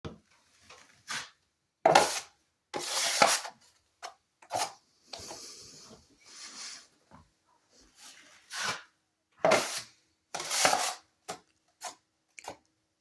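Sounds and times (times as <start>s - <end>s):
rough scraping strokes: 7.9s - 11.0s.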